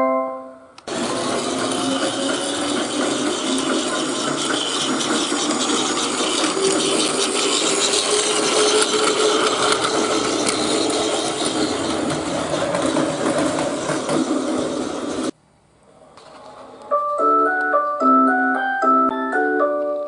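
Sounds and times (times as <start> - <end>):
rattle of clicks: 0.8 - 15.2
toy train motor whirring: 0.9 - 15.4.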